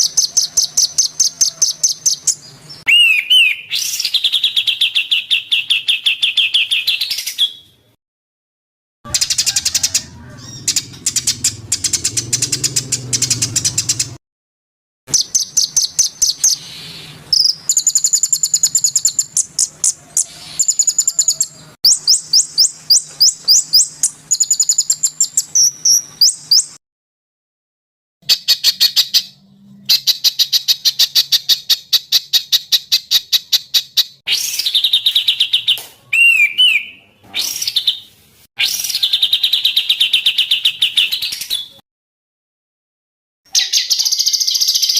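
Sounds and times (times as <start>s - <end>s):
songbirds chirping and trilling: 0.0s - 7.8s, 9.1s - 14.2s, 15.1s - 26.8s, 38.7s - 41.8s, 43.5s - 44.9s.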